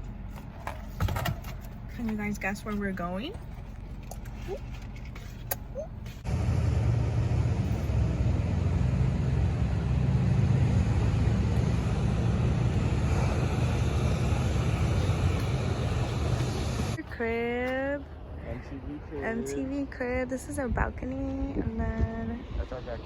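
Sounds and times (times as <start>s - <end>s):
moving car road noise: 0.0s - 23.0s.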